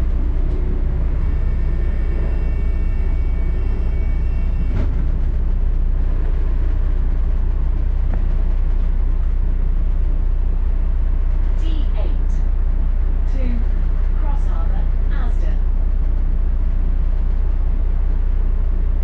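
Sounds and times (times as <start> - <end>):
faint high whine: 0.0 - 8.3
bus engine and road rumble: 0.0 - 19.0.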